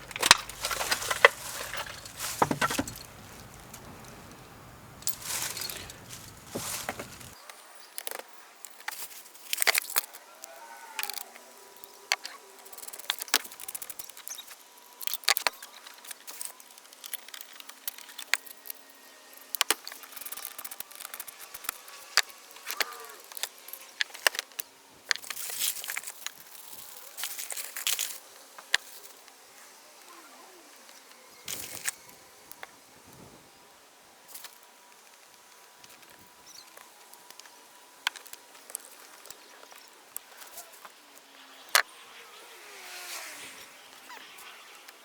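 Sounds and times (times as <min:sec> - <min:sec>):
clicks and knocks of metal parts: 0:00.0 - 0:07.4
scraping and rustling: 0:00.0 - 0:07.4.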